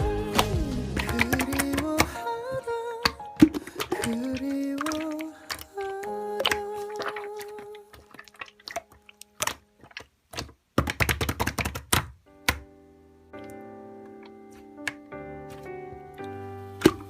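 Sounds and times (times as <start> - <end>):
soft music chords: 0.0 - 7.9, 12.3 - 17.0
background song: 0.0 - 8.7.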